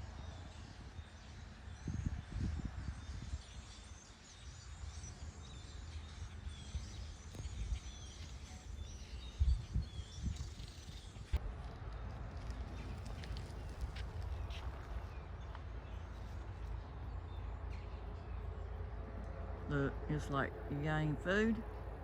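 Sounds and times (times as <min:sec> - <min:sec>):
small birds chirping: 0:00.1 - 0:11.4
low rumbling noise: 0:11.2 - 0:22.0.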